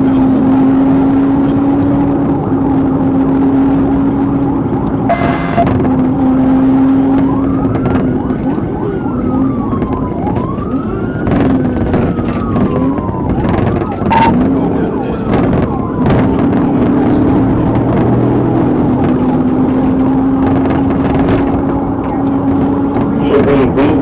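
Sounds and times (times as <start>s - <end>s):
car engine and road drone: 0.0s - 9.8s, 10.4s - 24.0s
police siren wailing: 5.1s - 5.7s, 7.3s - 14.4s
short sharp beep: 5.1s - 5.7s, 14.1s - 14.4s.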